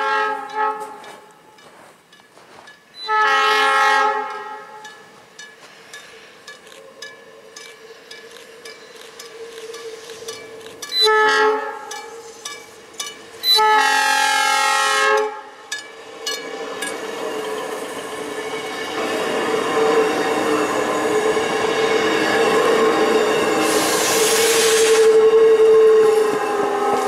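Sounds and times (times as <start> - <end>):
train horn blasts: 0.0 - 1.4, 3.0 - 5.0, 10.9 - 12.3, 13.4 - 15.6, 23.7 - 27.0
train wheel and rail noise: 0.0 - 27.0.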